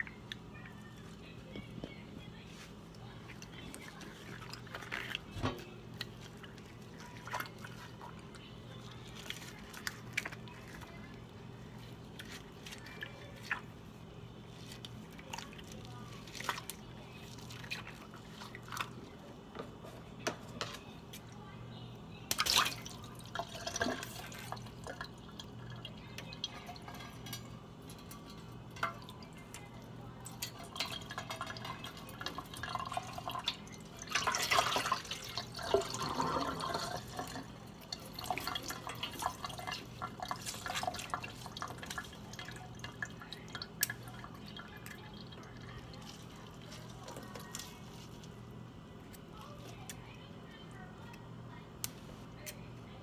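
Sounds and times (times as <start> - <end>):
wet crackles and squelches: 0.0 - 19.8
faint steady hum: 0.0 - 53.0.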